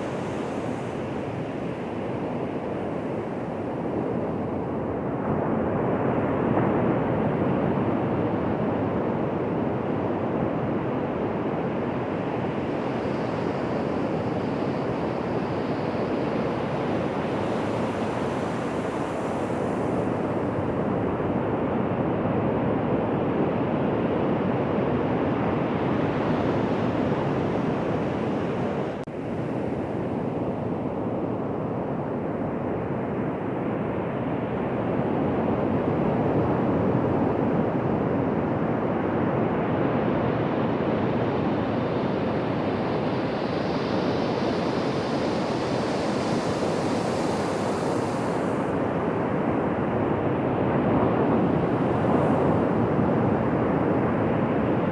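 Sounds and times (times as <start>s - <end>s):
ocean surf breaking on beach: 43.3s - 50.0s.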